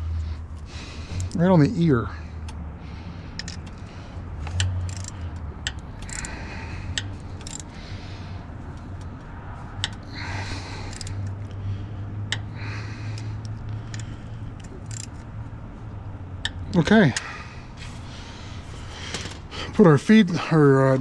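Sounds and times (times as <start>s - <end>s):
steady low hum: 0.0s - 21.0s
rustles of parts handled: 3.3s - 10.1s, 10.7s - 11.6s, 13.4s - 16.0s, 17.7s - 21.0s
metallic clicks of hand tools: 3.4s - 7.8s, 8.6s - 10.1s, 10.8s - 11.6s, 13.4s - 15.3s.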